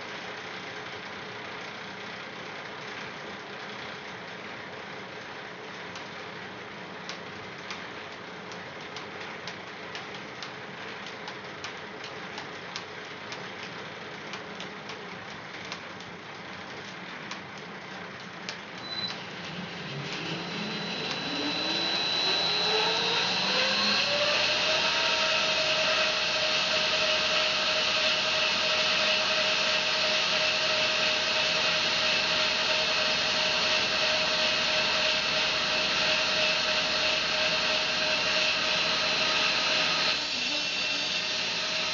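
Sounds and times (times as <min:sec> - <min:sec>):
bandsaw mill drive whining: 0:18.8 - 0:41.9.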